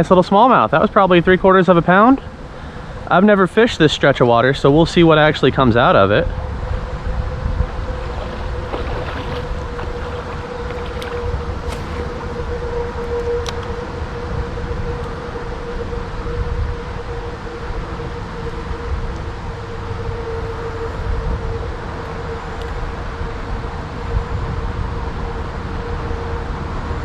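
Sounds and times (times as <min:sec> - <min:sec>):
steady hum: 0:00.0 - 0:24.8
wind rumbling on microphone: 0:04.2 - 0:27.0.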